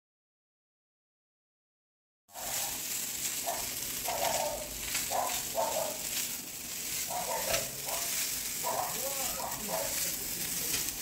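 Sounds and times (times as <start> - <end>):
food frying in oil: 2.3 - 11.0.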